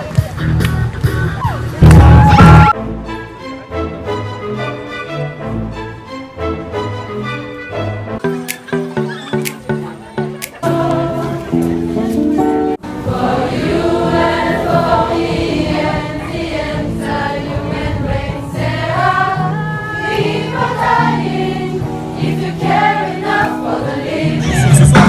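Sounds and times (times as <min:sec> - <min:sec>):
choir singing held notes: 0:10.6 - 0:12.0, 0:12.6 - 0:25.0.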